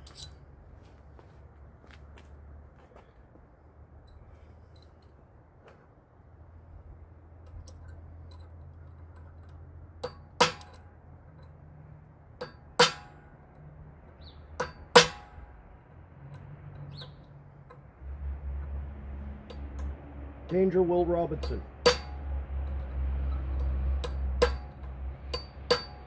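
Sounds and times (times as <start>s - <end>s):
hammer striking steel: 10.0s - 10.9s, 12.4s - 13.4s, 14.6s - 15.5s, 19.5s - 26.0s.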